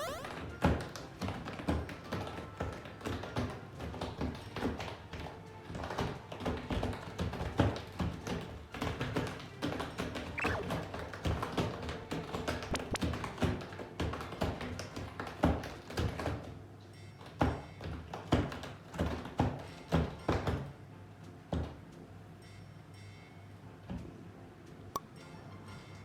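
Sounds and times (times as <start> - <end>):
background music: 23.7 - 26.0.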